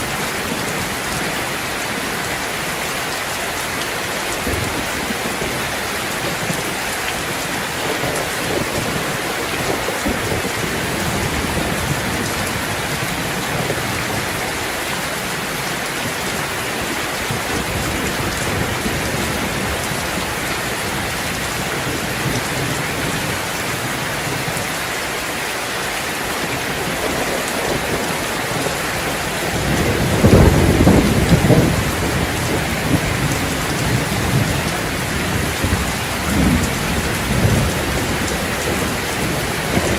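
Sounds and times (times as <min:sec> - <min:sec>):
steady rain falling: 0:00.0 - 0:39.9
thunder rumbling: 0:04.4 - 0:14.6, 0:26.4 - 0:39.9.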